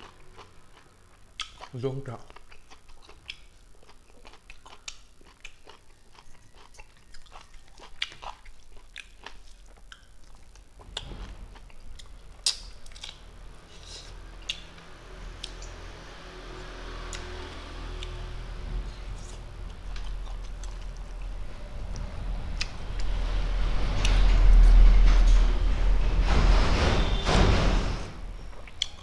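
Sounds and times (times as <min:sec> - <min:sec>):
low steady hum: 0:00.0 - 0:29.0
wet chewing and lip smacking: 0:02.3 - 0:11.0.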